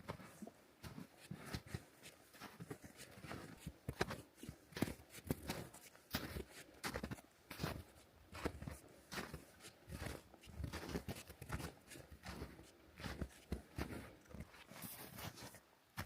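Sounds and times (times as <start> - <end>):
boot footsteps on frozen trail: 0.0 - 16.0.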